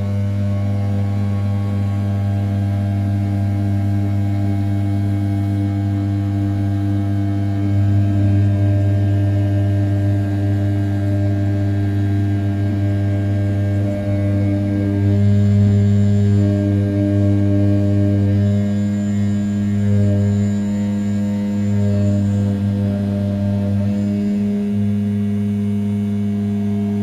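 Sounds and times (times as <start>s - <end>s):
milling spindle droning hum: 0.0s - 27.0s.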